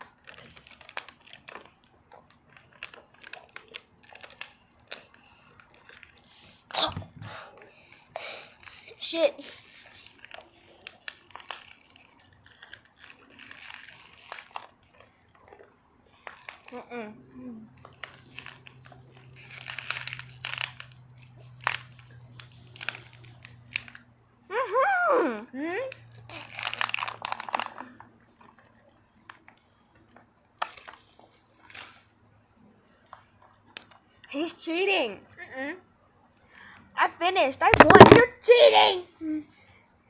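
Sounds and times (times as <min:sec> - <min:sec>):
plastic bottle crinkling: 0:00.0 - 0:16.8, 0:17.8 - 0:24.0, 0:25.9 - 0:32.1, 0:37.6 - 0:38.3.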